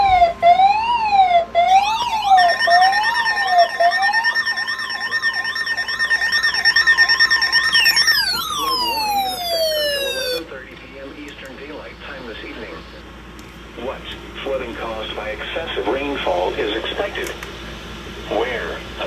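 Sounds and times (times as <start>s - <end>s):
electronic siren wailing: 0.0s - 10.5s.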